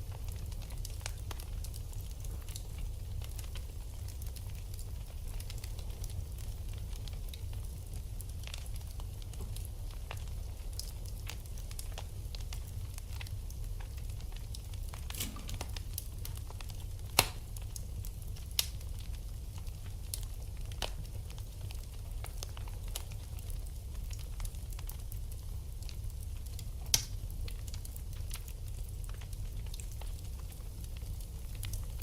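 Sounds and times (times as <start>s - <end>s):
wood fire crackling: 0.0s - 32.0s
sharp pops from fire: 14.1s - 17.9s, 18.5s - 19.1s, 26.8s - 28.5s.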